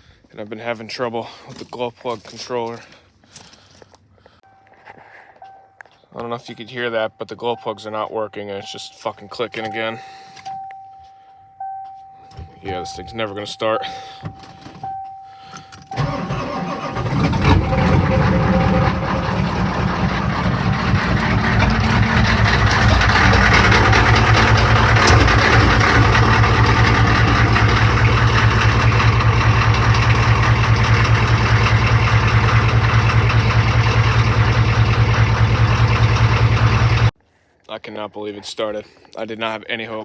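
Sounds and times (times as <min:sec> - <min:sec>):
diesel engine cranking and idling: 0:13.9 - 0:37.2.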